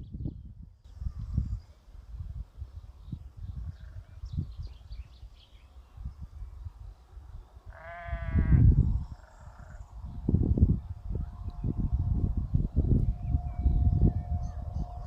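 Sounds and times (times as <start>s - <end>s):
livestock bleating: 7.7s - 9.8s.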